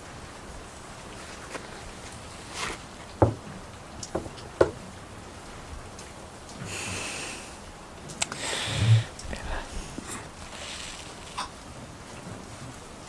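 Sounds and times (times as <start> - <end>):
rain falling: 0.0 - 13.0
sharp knocks: 3.2 - 3.5
hissing rustle: 5.4 - 13.0.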